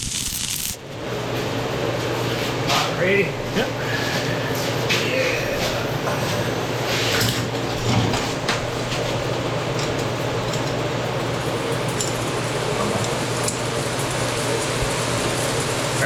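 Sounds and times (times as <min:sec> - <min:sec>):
welding arc sizzling: 0:00.0 - 0:00.9, 0:08.3 - 0:16.0.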